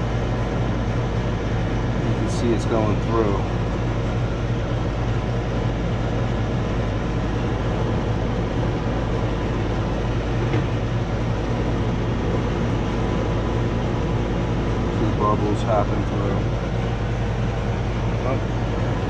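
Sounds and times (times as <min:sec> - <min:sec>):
air conditioner blower rushing: 0:00.0 - 0:19.0
low hum: 0:00.0 - 0:19.0.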